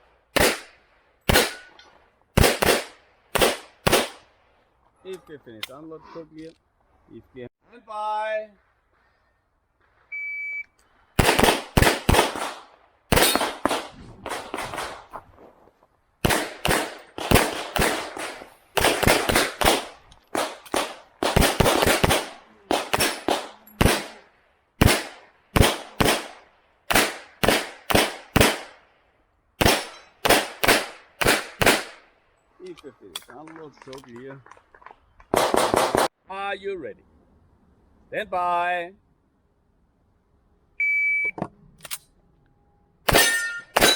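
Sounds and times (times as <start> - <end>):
pistol shots: 0.3 - 1.7, 2.4 - 4.2, 11.2 - 15.2, 16.2 - 28.8, 29.6 - 32.0, 35.3 - 36.1, 43.1 - 43.9
shot timer beep: 40.8 - 41.4.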